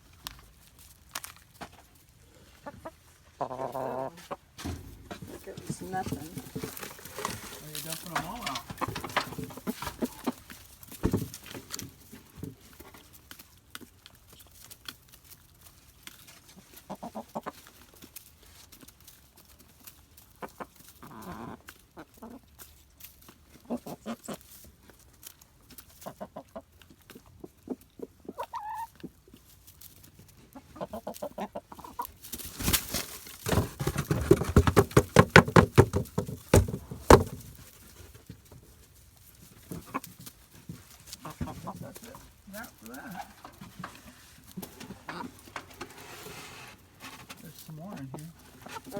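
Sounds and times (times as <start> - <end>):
hens clucking: 2.2 - 14.3, 14.9 - 48.9
rustling and clatter: 4.5 - 21.9, 31.9 - 48.9.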